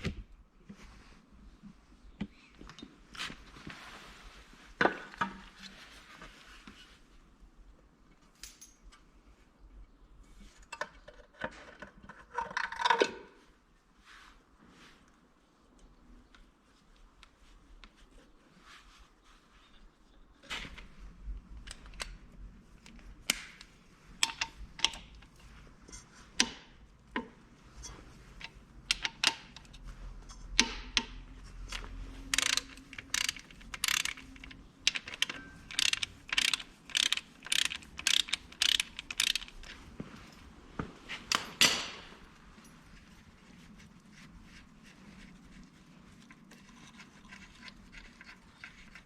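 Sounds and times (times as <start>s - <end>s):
hand tools clanking on metal: 41.3s - 42.2s.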